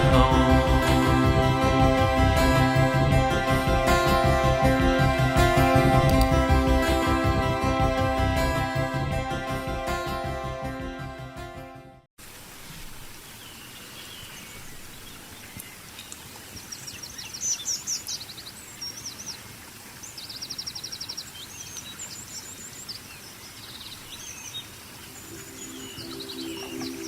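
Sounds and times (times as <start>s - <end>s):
music: 0.0s - 12.1s
outdoor background hiss: 12.2s - 27.0s
songbirds singing and chirping: 13.2s - 27.0s.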